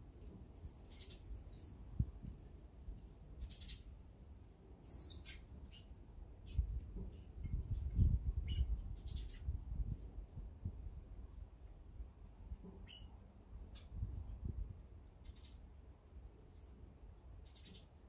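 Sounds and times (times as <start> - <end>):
bird chirps: 0.9 - 1.8, 4.8 - 6.7, 8.4 - 9.5, 12.8 - 13.1, 15.2 - 15.6, 17.4 - 18.0.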